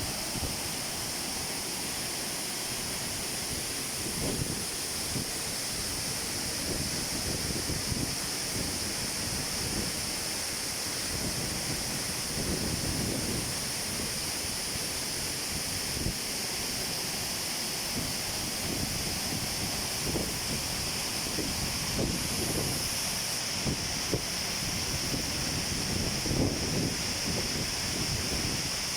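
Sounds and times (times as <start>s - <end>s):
rushing falling water: 0.0s - 28.9s
wind buffeting microphone: 4.0s - 5.3s, 21.4s - 22.8s, 23.6s - 28.6s.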